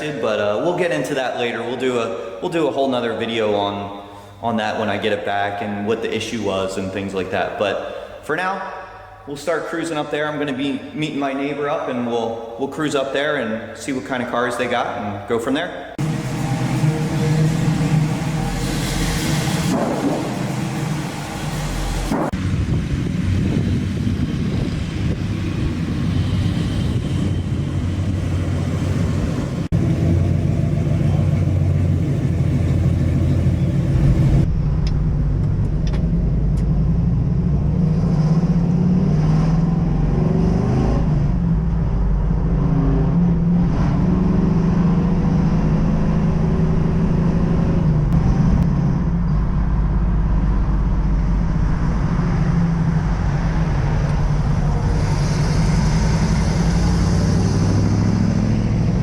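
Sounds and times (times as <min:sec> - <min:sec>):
car engine revving while driving: 0:37.4 - 0:48.9, 0:54.4 - 0:59.0.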